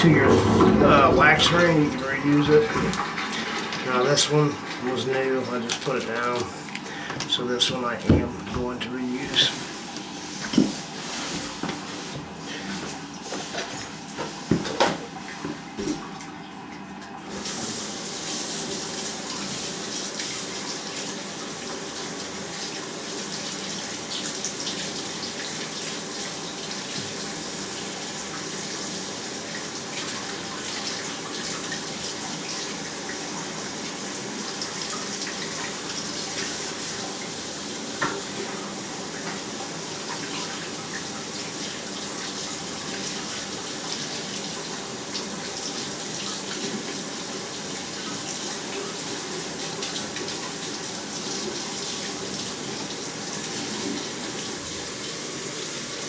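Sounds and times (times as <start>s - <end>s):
steady rushing noise: 0.0s - 3.1s.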